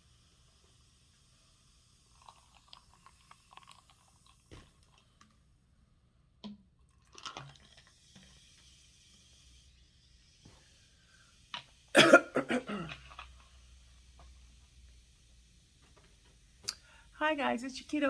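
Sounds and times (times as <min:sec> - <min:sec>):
faint chewing: 0:02.2 - 0:05.4
wet mouth clicks: 0:16.6 - 0:16.8.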